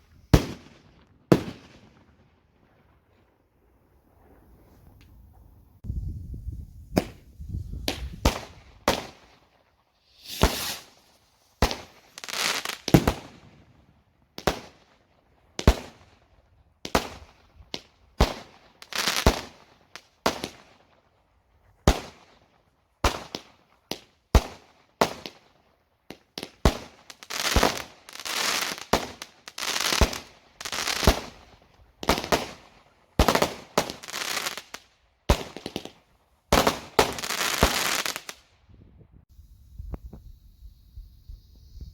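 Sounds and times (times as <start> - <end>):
fireworks rushing noise: 5.8 - 9.2, 10.0 - 13.3
fireworks banging: 6.9 - 9.2, 10.2 - 10.9.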